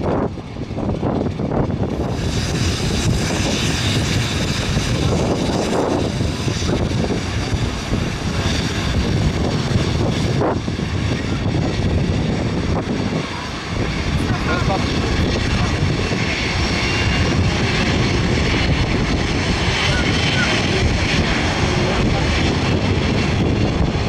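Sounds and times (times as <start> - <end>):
jet airliner engine noise: 0.0 - 24.0
wind buffeting on microphone: 0.0 - 24.0
hiss: 2.0 - 7.4.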